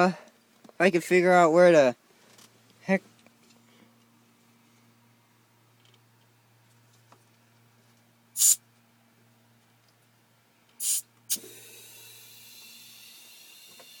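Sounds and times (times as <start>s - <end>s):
air valve hissing: 8.4s - 8.6s, 10.8s - 14.0s.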